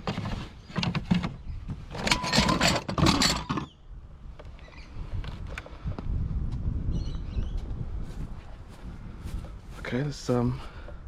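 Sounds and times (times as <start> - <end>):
junk clattering and scraping: 0.0 - 3.7.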